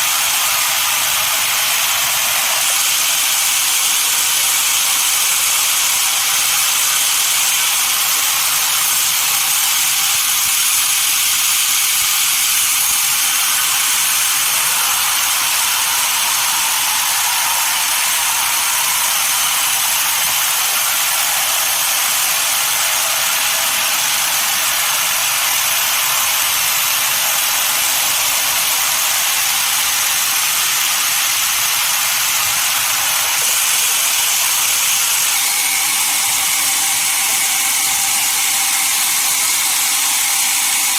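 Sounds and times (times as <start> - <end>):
sawmill saw cutting log: 0.0 - 40.9.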